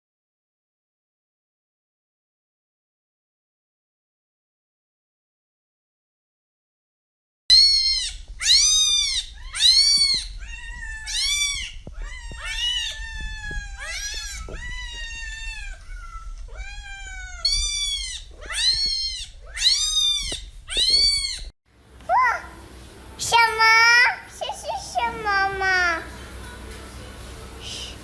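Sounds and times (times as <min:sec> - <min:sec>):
cat meowing: 0:07.5 - 0:21.5.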